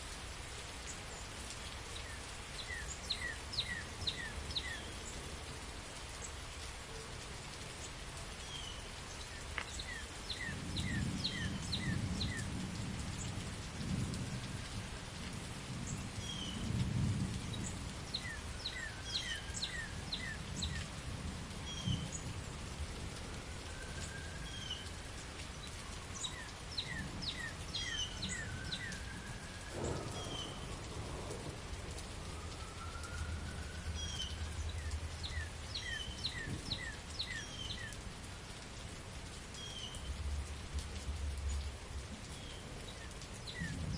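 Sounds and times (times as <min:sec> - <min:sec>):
steady rain: 0:00.0 - 0:43.9
thunder rumbling: 0:09.9 - 0:37.2, 0:40.1 - 0:43.9
birds chirping: 0:29.8 - 0:30.8, 0:33.8 - 0:38.0.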